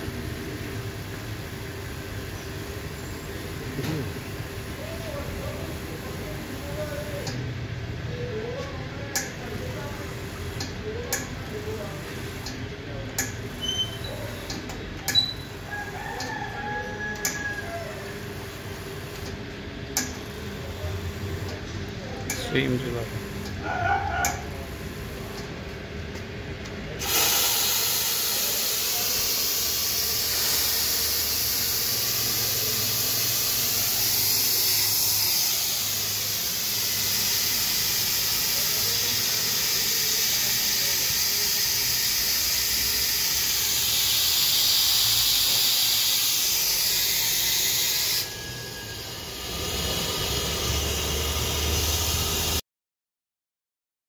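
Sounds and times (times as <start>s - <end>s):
espresso steam wand hissing: 13.2s - 19.2s, 26.9s - 52.6s.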